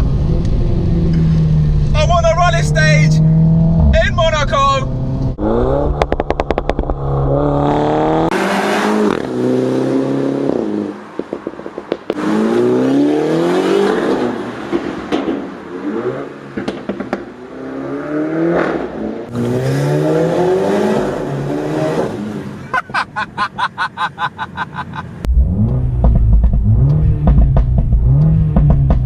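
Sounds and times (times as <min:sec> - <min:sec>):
car engine accelerating: 0:00.0 - 0:04.0, 0:24.6 - 0:29.0
exhaust crackles and pops: 0:05.2 - 0:07.1, 0:16.6 - 0:17.3, 0:25.2 - 0:29.0.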